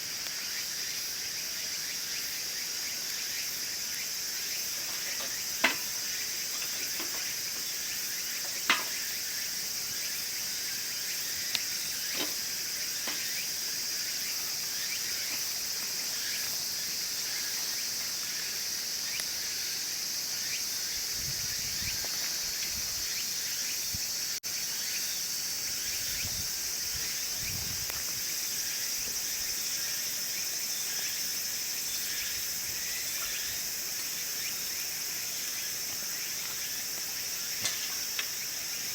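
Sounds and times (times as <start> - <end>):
crickets and insects chirping: 0.0 - 38.9
wood fire popping: 4.7 - 9.2.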